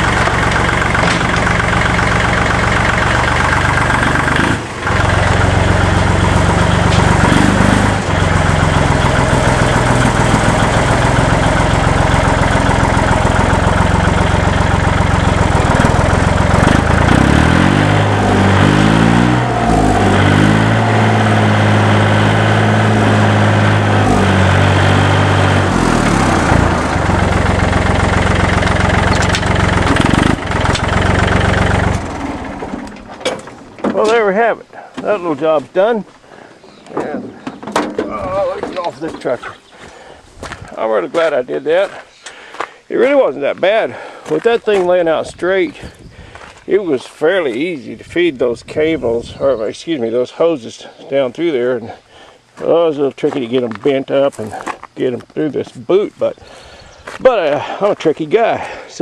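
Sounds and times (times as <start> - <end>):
diesel engine running: 0.0 - 34.5.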